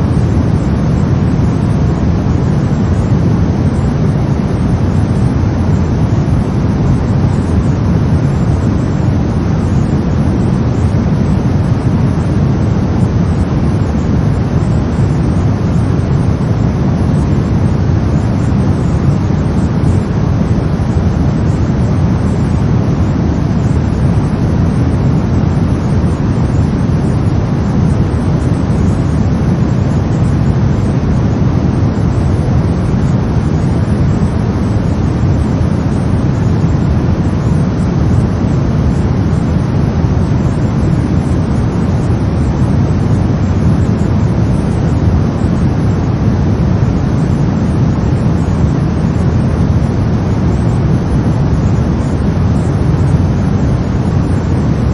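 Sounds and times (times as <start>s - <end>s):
brown noise: 0.0s - 54.9s.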